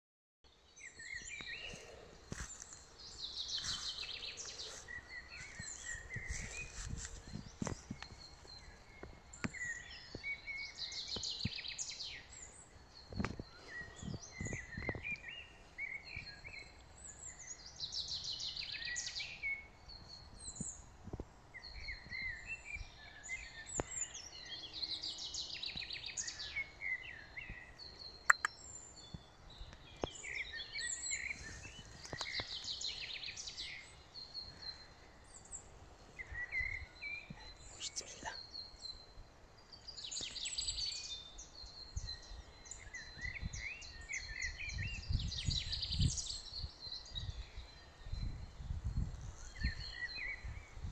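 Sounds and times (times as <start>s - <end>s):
songbirds singing: 0.4s - 50.9s
sharp click: 28.3s - 28.5s.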